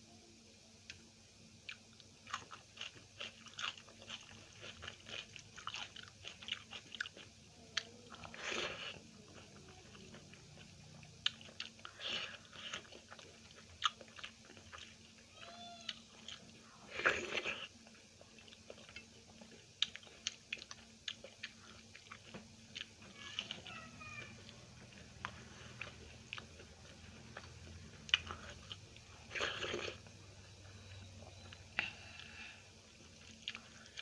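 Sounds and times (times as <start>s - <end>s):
chewing with wet mouth clicks: 1.6s - 15.0s, 17.1s - 23.5s, 24.4s - 30.1s, 33.0s - 34.0s.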